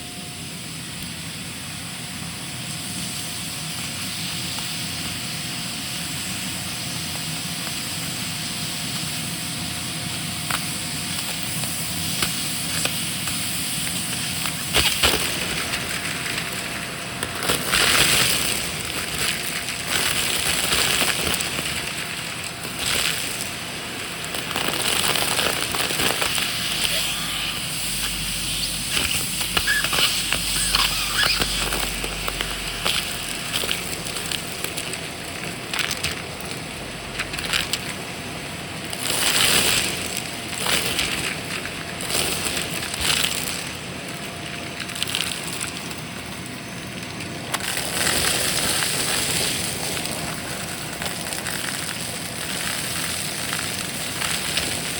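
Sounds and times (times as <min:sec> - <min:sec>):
debris crackling in vacuum: 0:12.0 - 0:54.9
vacuum cleaner running: 0:23.0 - 0:40.0.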